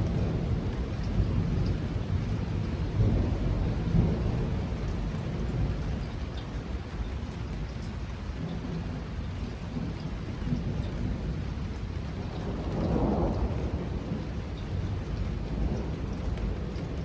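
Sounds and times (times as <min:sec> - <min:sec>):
thunder rumbling: 0:00.0 - 0:06.3, 0:10.5 - 0:17.0
heavy rain: 0:00.0 - 0:17.0.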